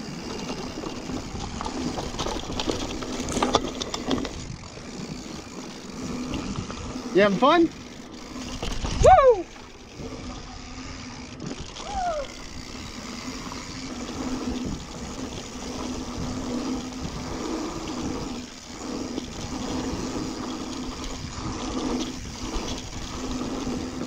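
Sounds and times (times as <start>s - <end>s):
bike tyres rolling on dirt: 0.0s - 24.0s
wind noise on microphone: 8.5s - 10.2s, 11.5s - 24.0s.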